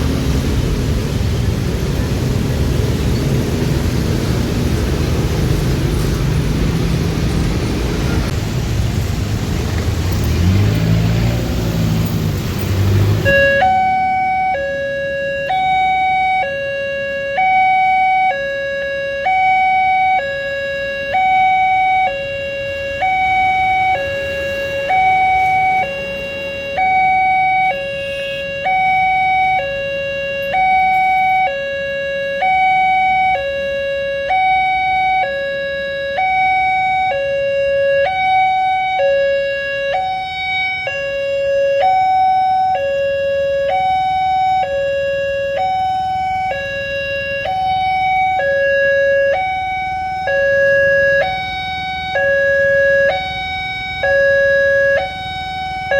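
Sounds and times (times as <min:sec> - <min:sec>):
road traffic noise: 0:00.0 - 0:55.9
level crossing alarm two-tone: 0:13.2 - 0:55.9.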